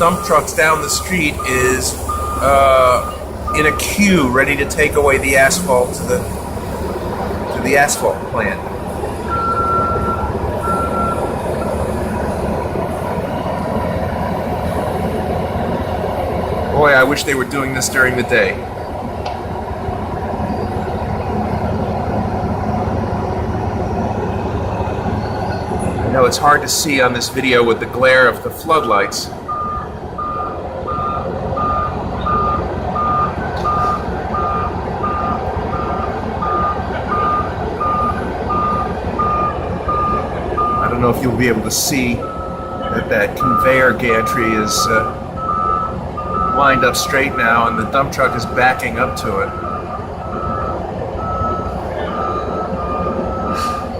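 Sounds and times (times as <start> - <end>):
reversing alarm beep: 0.0 - 6.0, 9.3 - 11.8, 29.5 - 41.0, 42.2 - 53.9
heavy machinery diesel rumble: 0.0 - 53.9.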